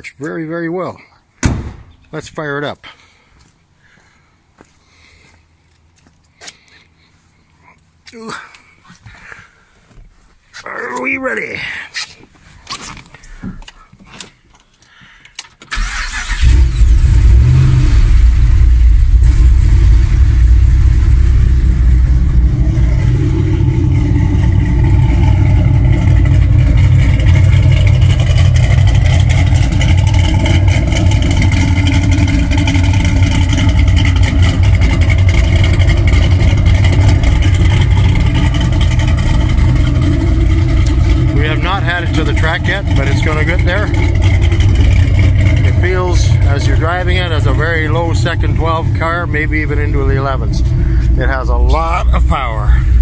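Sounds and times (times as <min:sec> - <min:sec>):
car engine rumbling: 0:01.2 - 0:03.8, 0:09.9 - 0:53.0
car engine starting: 0:15.7 - 0:53.0.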